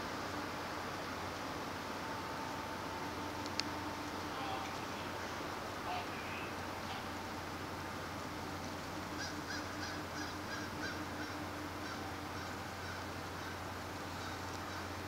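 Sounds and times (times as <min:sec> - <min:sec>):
steady low hum: 0:00.0 - 0:15.0
birds honking calls: 0:04.2 - 0:07.2.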